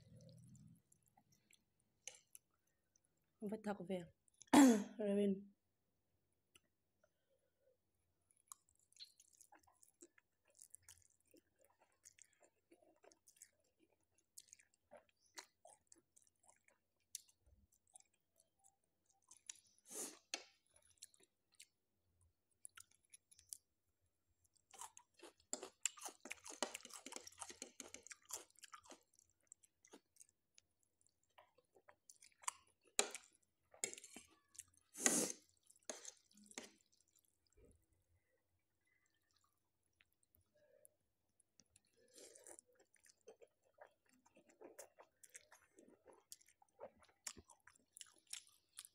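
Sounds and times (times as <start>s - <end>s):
chewing noodles: 0.0s - 3.2s, 8.3s - 40.7s, 41.4s - 48.9s
slurping noodles: 34.9s - 36.7s.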